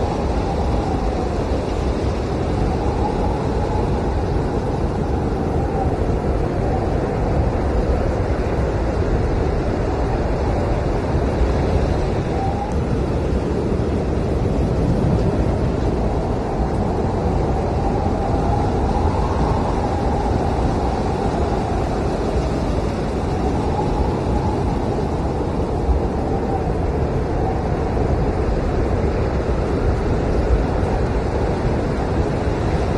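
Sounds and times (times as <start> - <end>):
faint howling whistle: 0.0 - 7.6, 10.2 - 28.2
blizzard wind rushing: 0.0 - 32.9.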